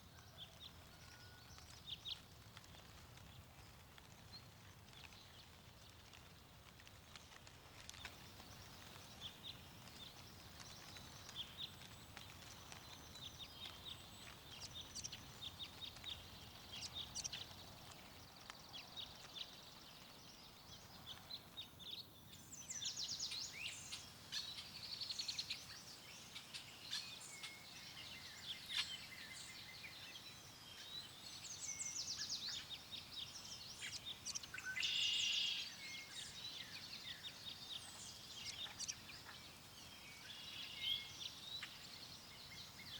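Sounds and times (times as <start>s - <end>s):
songbirds chirping: 0.0s - 42.9s.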